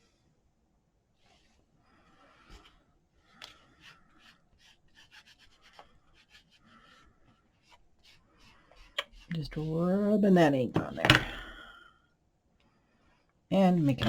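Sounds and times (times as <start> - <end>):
ink pad rubbing on paper: 3.8 - 7.0, 7.6 - 10.0.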